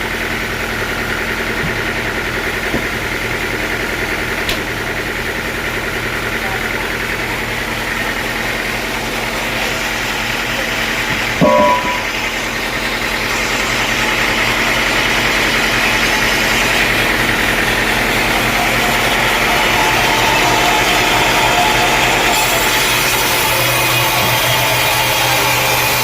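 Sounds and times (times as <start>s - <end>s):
sawmill engine running: 0.0s - 26.0s
saw cutting wood: 7.9s - 26.0s
loud squeal: 8.8s - 25.8s.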